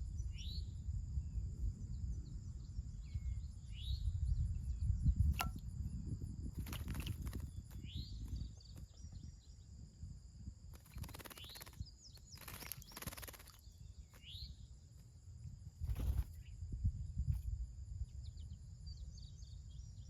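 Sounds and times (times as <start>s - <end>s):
small birds chirping: 6.5s - 9.8s, 10.7s - 15.1s, 15.7s - 16.7s, 18.0s - 20.0s
splashing in birdbath: 6.6s - 7.5s, 10.8s - 11.8s, 12.4s - 13.6s.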